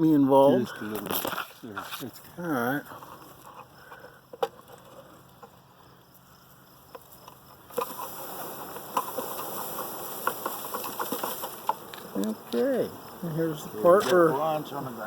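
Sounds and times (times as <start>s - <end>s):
bees dropping pattering taps: 6.9s - 14.8s
bee swarm buzzing: 7.5s - 15.0s
rustling of branch: 7.7s - 12.7s.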